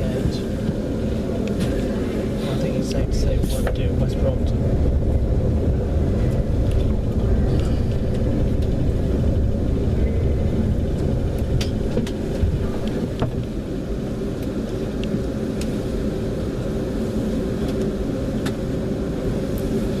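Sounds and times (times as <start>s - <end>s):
electric train rumbling: 0.0s - 20.0s.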